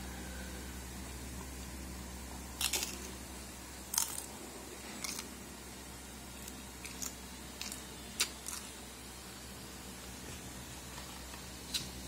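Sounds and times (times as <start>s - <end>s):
chewing crunchy chips: 2.6s - 3.1s, 3.8s - 5.4s, 6.4s - 8.8s.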